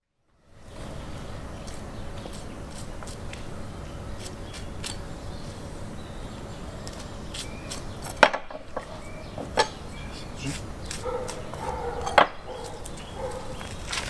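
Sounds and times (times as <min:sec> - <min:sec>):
knife clicking and scraping: 0:01.7 - 0:03.2, 0:04.2 - 0:05.1.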